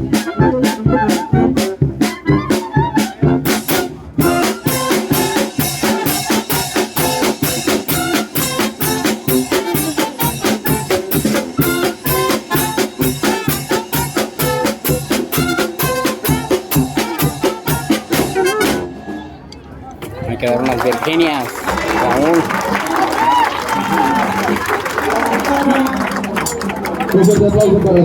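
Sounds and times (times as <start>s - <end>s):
steady drum beat: 0.0s - 19.1s
wind band brass playing: 0.0s - 19.5s.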